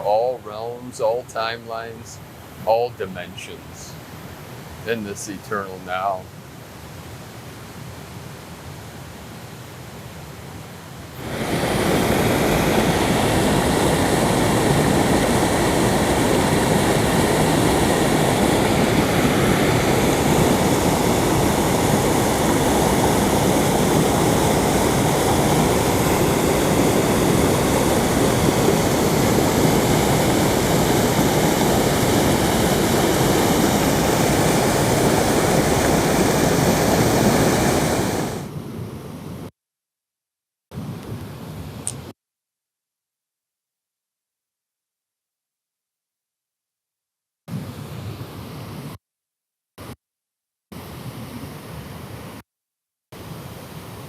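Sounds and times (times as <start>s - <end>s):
river and waterfall rushing: 0.0s - 6.2s, 11.2s - 38.5s.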